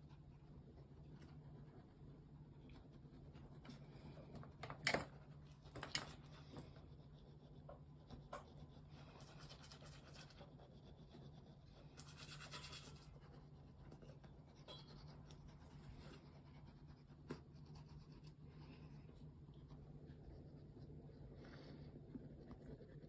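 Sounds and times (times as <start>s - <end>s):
steady low hum: 0.0s - 23.0s
faint scratching: 6.2s - 23.0s.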